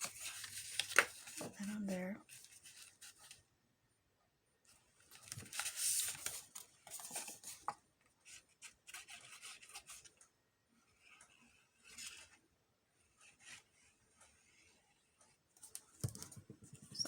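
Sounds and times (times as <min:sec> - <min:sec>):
paper rustling and rubbing: 0:00.0 - 0:03.4, 0:05.2 - 0:07.7.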